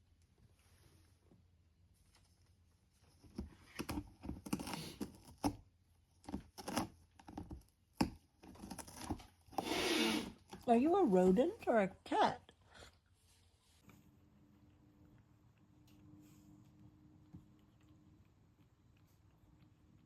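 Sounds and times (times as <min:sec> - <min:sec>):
cat gnawing cardboard: 0:02.8 - 0:10.7.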